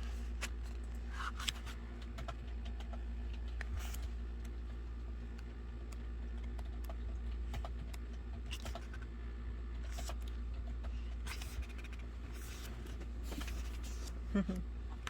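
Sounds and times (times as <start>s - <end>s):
paper and card rustling: 0.0s - 4.2s, 9.9s - 14.2s
steady low hum: 0.0s - 15.0s.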